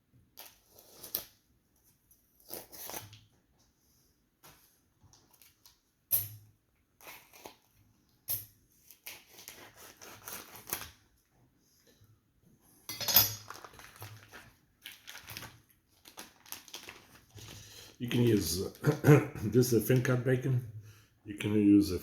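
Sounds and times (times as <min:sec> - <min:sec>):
rustling of hands handling food: 0:00.3 - 0:06.1, 0:06.9 - 0:18.8
kitchen utensils clattering: 0:12.9 - 0:13.6.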